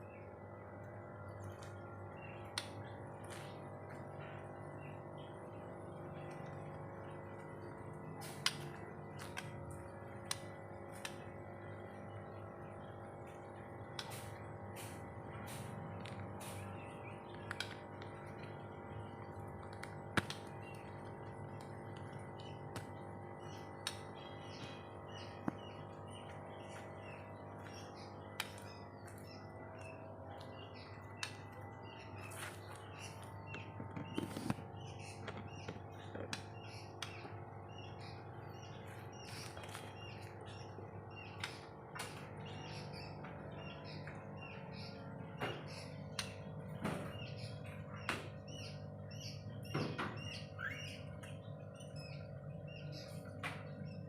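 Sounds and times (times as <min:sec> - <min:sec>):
bird chirps and clicks: 0:00.0 - 0:54.0
steady low hum: 0:00.0 - 0:54.0
bird chirping and calling: 0:47.1 - 0:54.0.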